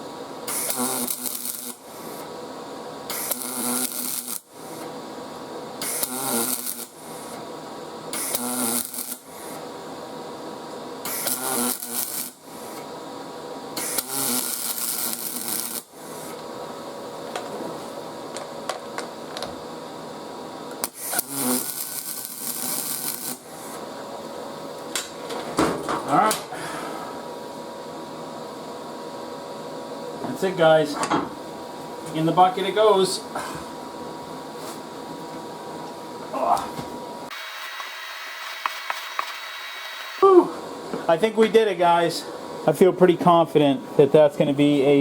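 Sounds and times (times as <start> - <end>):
welding arc buzzing and crackling: 0.0 - 25.3, 30.3 - 43.2
steady hum: 0.0 - 45.0.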